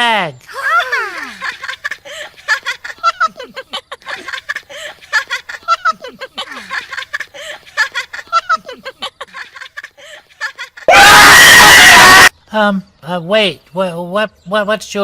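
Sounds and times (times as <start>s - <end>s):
puppet characters giggling: 0.5s - 10.9s.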